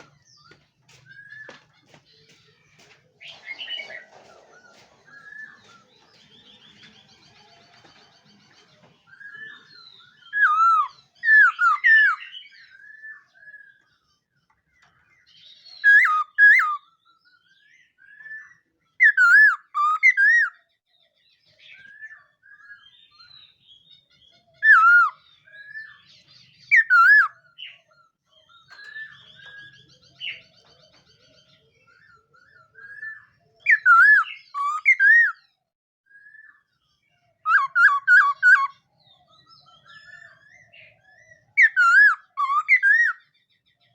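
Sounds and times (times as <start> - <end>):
soft bird chirps: 0.0 - 43.9
bird whistled phrases: 9.1 - 13.8, 15.8 - 16.9, 18.1 - 20.6, 24.6 - 26.0, 26.7 - 27.4, 32.2 - 35.4, 37.4 - 38.8, 39.7 - 43.3.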